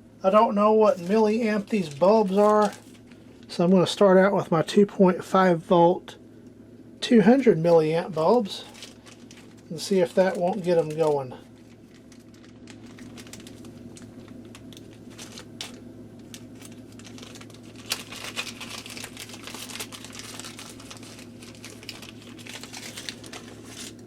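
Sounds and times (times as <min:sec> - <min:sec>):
steady low hum: 0:00.0 - 0:24.0
plastic packaging crinkling: 0:00.8 - 0:03.6, 0:08.2 - 0:24.0.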